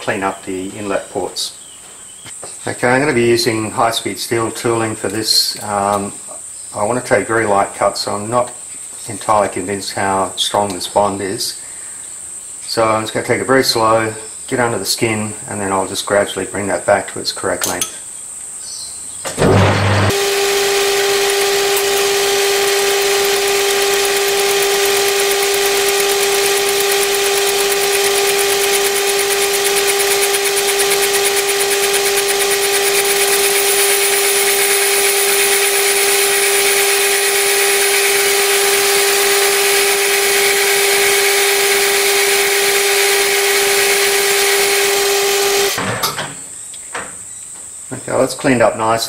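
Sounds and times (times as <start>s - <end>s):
metal lathe cutting: 19.4s - 45.9s.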